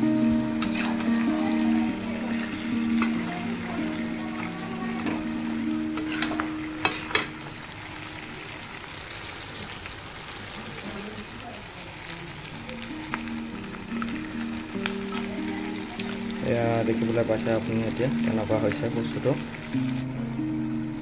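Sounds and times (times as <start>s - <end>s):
background music: 0.0s - 8.8s, 12.6s - 21.0s
meat sizzling in a pan: 0.0s - 21.0s
spatula scraping and knocking pan: 0.6s - 1.2s.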